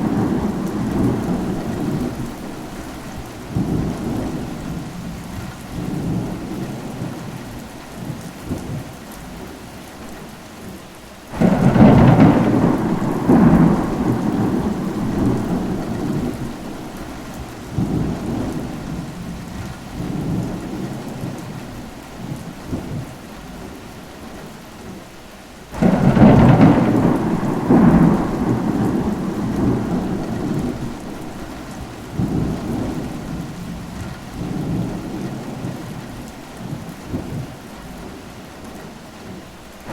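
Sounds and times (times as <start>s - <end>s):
thunder rumbling: 0.0s - 7.4s, 11.3s - 23.2s, 25.8s - 37.6s
steady rain: 0.0s - 39.9s.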